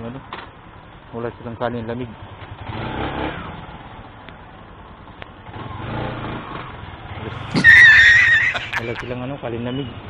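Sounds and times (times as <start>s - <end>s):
road and wind noise: 0.0s - 10.0s
motorcycle engine revving: 2.6s - 3.8s.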